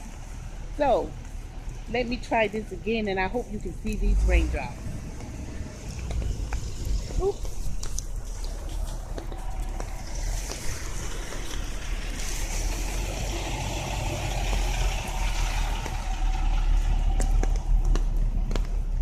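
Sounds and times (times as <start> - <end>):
truck driving past: 8.0 - 19.0.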